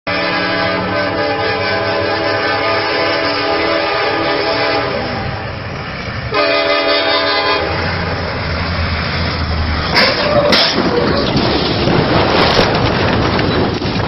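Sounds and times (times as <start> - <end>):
train horn blasts: 0.1 - 5.5, 6.3 - 8.1
train rumbling: 0.1 - 14.0.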